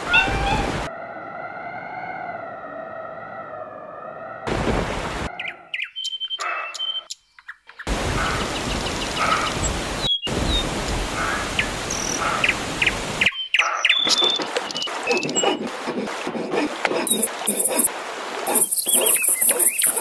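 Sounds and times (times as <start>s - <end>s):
small birds chirping: 5.4s - 7.9s, 17.1s - 17.9s, 18.5s - 20.0s.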